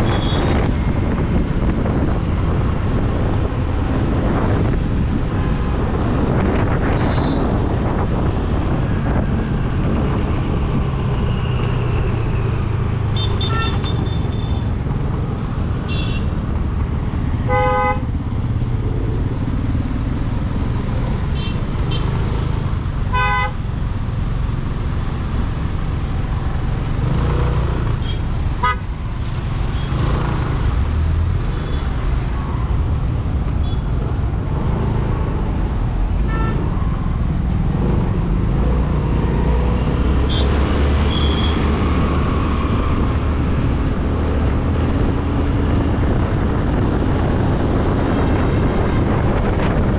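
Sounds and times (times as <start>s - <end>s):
motorcycle road and wind noise: 0.0s - 49.9s
vehicle horn honks: 13.2s - 14.6s, 23.2s - 23.6s, 41.1s - 41.6s.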